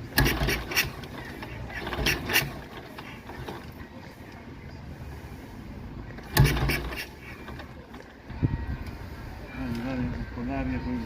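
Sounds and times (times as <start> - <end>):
motorcycle engine coughing: 0.2 - 3.6, 6.3 - 7.6.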